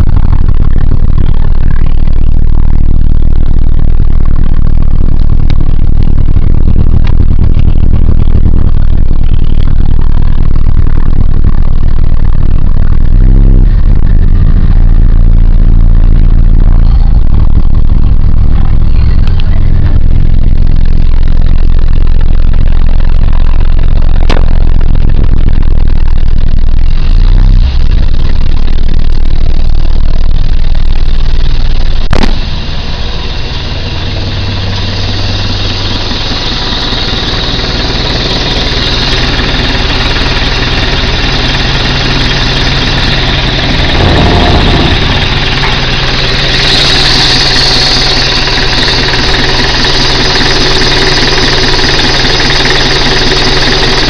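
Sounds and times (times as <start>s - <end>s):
pickup truck engine running: 32.1s - 54.0s.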